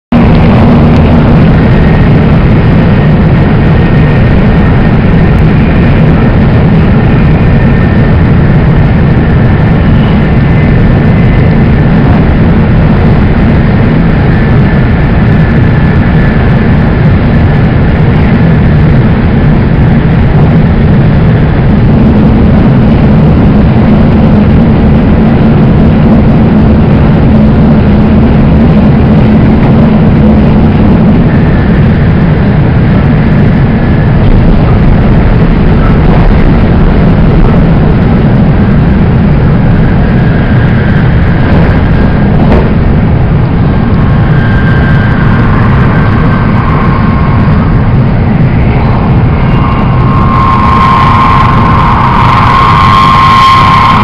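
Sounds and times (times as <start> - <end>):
train wheels and air rumble: 0.1 - 54.0
faint high tones: 39.8 - 54.0.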